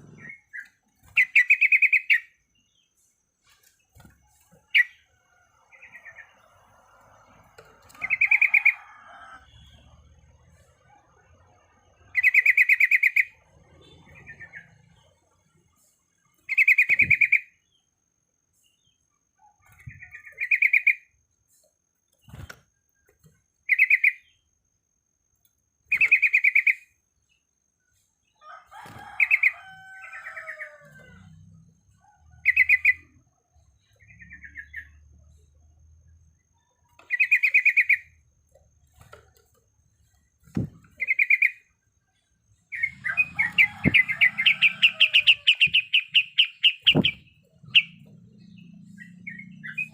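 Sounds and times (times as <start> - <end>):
bulbul trilling call: 42.7 - 48.0.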